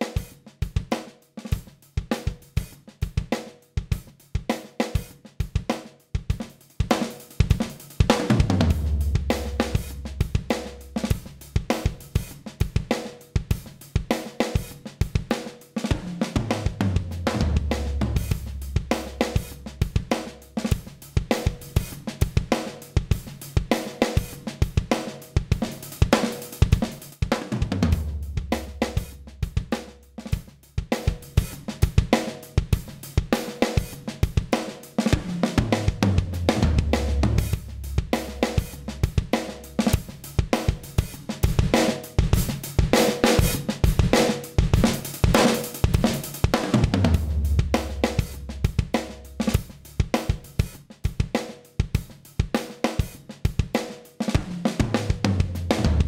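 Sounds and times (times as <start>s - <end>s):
drum kit groove: 0.0s - 56.0s
bass line: 8.5s - 10.8s, 16.8s - 19.6s, 36.0s - 38.9s, 46.8s - 48.9s.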